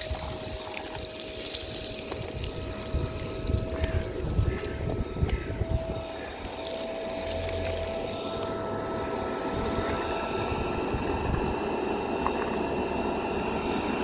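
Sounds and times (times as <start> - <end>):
vacuum cleaner motor whine: 0.0 - 14.0
debris clicks in vacuum: 6.1 - 10.3.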